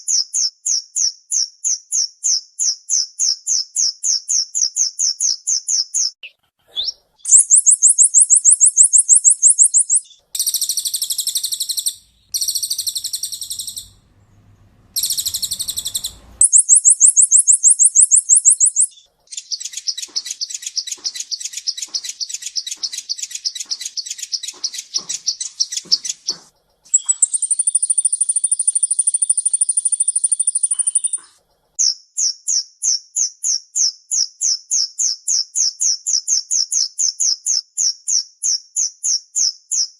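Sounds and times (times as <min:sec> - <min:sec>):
bird singing fast high trills: 0:06.8 - 0:26.3, 0:26.9 - 0:32.4
low rattling bird trill: 0:07.2 - 0:31.4.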